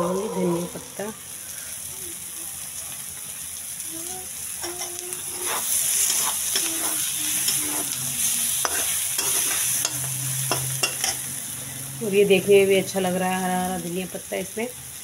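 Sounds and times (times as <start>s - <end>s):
oil sizzling: 0.0s - 15.0s
metal spatula scraping pan: 4.6s - 11.3s.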